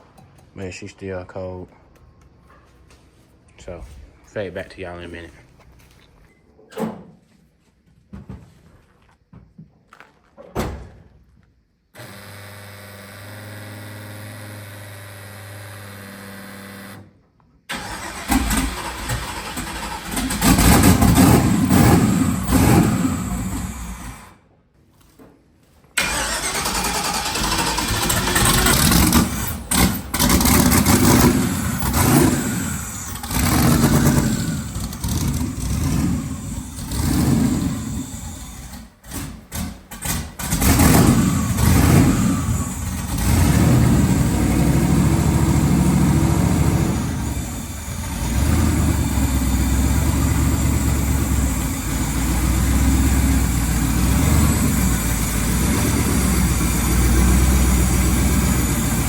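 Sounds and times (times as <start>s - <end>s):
car engine running: 17.8s - 24.2s, 26.0s - 38.8s, 40.0s - 59.0s.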